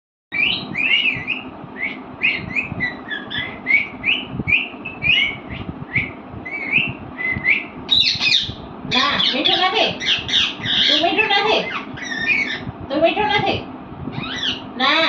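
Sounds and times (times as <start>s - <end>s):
parrot chirping and whistling: 0.3s - 8.6s, 11.7s - 12.7s, 14.2s - 14.6s.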